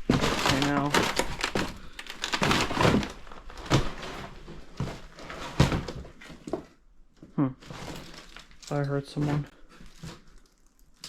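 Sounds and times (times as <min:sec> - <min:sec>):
footsteps crunching on debris: 0:00.0 - 0:06.6.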